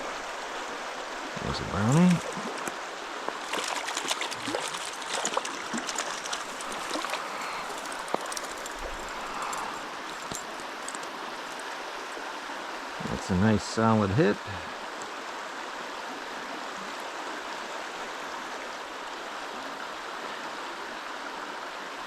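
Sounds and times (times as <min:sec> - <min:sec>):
stream water running: 0:00.0 - 0:22.0
small sharp splashes and clicks: 0:01.8 - 0:12.3.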